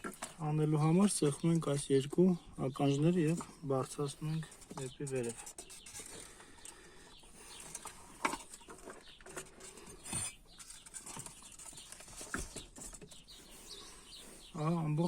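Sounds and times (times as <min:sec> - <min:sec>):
plastic rustles: 0:07.4 - 0:13.8.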